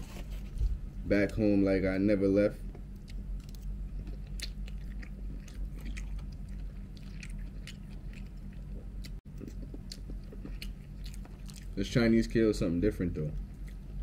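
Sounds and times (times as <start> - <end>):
person chewing food: 2.7 - 11.8, 13.4 - 14.0.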